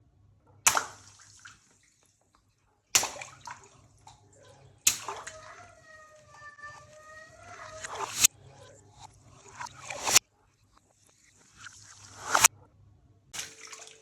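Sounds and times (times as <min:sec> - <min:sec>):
water balloons bursting: 0:00.7 - 0:01.6, 0:03.0 - 0:10.2, 0:13.4 - 0:14.0
water splashing: 0:00.7 - 0:02.2, 0:03.0 - 0:10.2, 0:10.9 - 0:12.5, 0:13.4 - 0:14.0.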